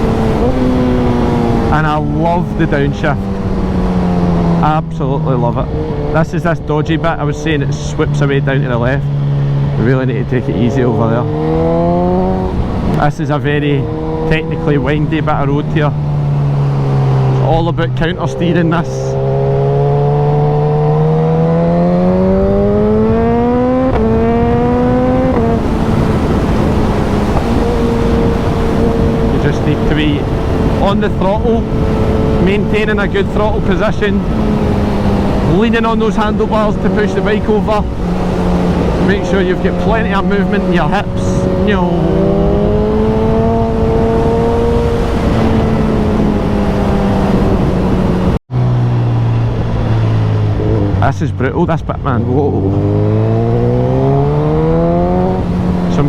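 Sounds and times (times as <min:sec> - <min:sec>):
motorcycle engine accelerating: 0:00.0 - 0:56.0
wind rush: 0:00.0 - 0:56.0.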